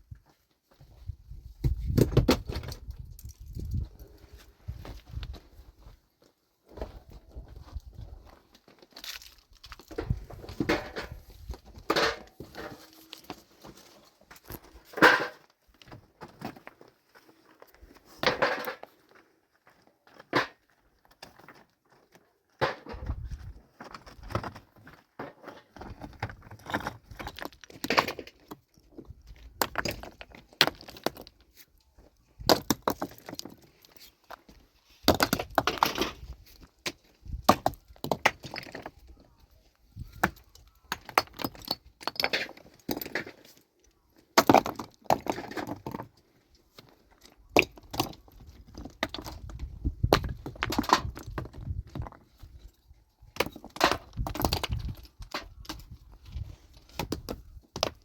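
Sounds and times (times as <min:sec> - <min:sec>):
stones knocking together: 0:25.8 - 0:31.4, 0:32.4 - 0:33.9, 0:35.0 - 0:39.2, 0:40.1 - 0:43.4, 0:44.4 - 0:46.1, 0:47.3 - 0:52.2, 0:53.4 - 0:56.0, 0:56.9 - 0:58.0.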